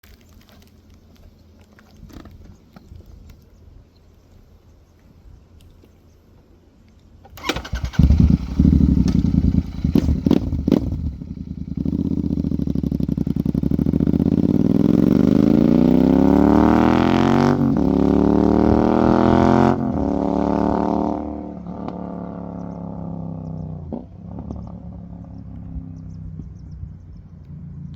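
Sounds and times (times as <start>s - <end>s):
motorcycle engine revving: 7.4s - 26.8s.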